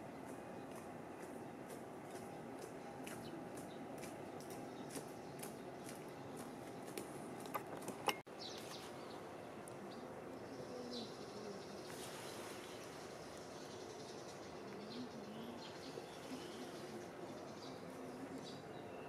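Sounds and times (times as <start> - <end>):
steady low murmur: 0.0 - 8.2
birds chirping: 0.0 - 19.0.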